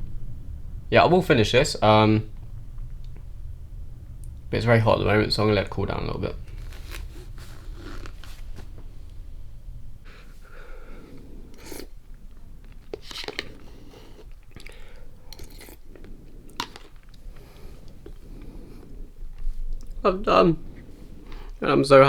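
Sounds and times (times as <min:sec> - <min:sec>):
person chewing noodles: 0:12.6 - 0:20.0.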